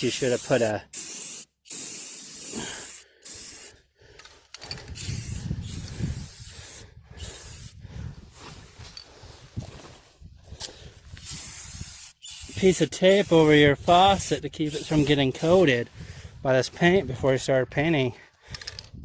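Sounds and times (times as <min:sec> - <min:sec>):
spray paint can hissing: 0:00.0 - 0:03.8, 0:04.9 - 0:07.8, 0:11.2 - 0:15.5.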